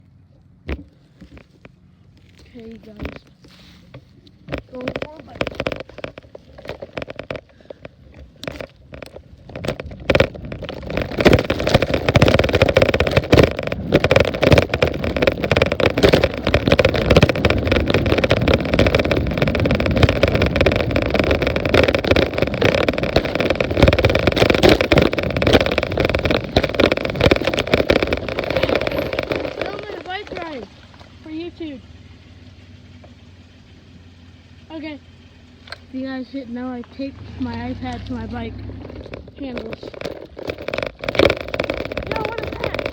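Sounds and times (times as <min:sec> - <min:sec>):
bicycle knocks and rattles: 0:00.6 - 0:31.5, 0:37.8 - 0:42.9
wind rushing over microphone: 0:09.4 - 0:30.6.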